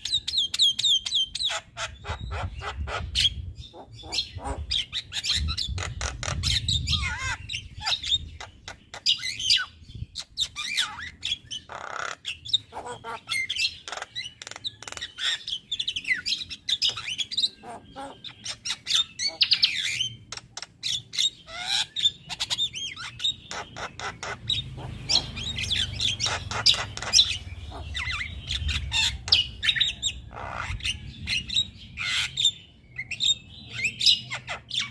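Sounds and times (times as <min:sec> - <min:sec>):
myna calling: 0:01.5 - 0:09.0, 0:10.8 - 0:15.0, 0:16.8 - 0:20.0, 0:21.4 - 0:31.0.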